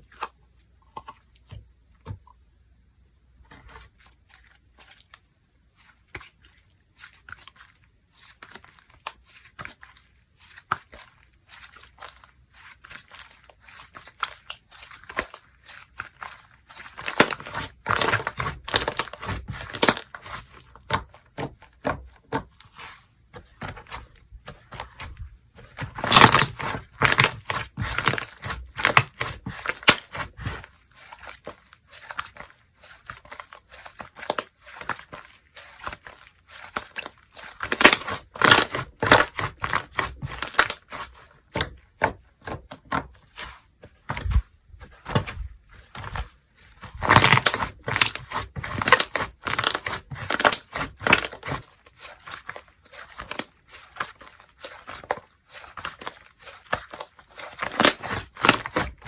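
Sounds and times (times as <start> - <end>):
slime crackling and popping: 10.5 - 22.6, 23.4 - 43.2, 46.8 - 59.0.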